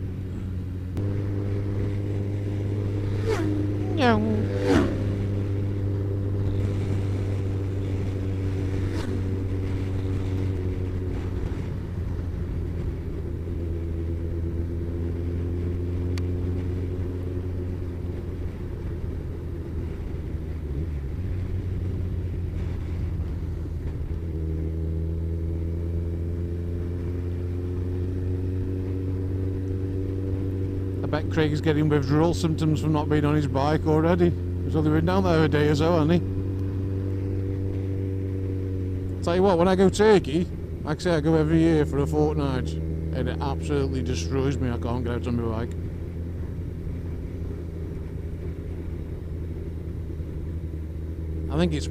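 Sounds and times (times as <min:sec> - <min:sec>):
motorcycle engine cruising: 0:00.0 - 0:51.9
wind and road noise: 0:00.0 - 0:51.9.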